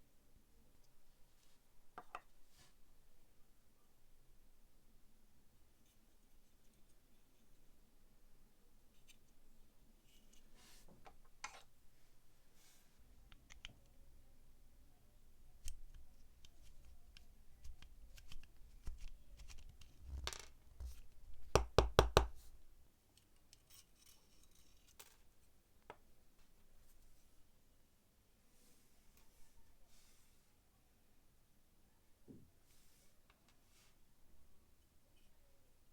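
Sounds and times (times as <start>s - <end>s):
metal parts and tools handled: 23.5s - 25.3s.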